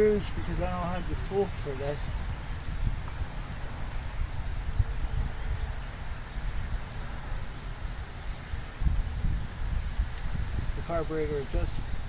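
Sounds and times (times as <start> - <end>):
insects trilling: 0.0 - 12.0
wind rumbling on microphone: 0.0 - 12.0.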